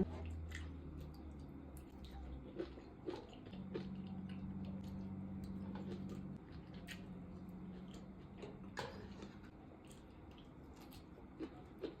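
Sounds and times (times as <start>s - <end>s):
low steady hum: 0.0s - 12.0s
chewing mouth noises: 9.8s - 12.0s.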